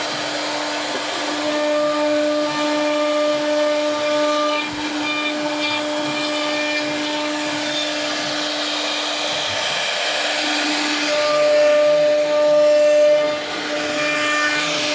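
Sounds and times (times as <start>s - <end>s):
power tool motor whining: 0.0s - 14.9s
harsh hissing noise: 4.7s - 14.9s.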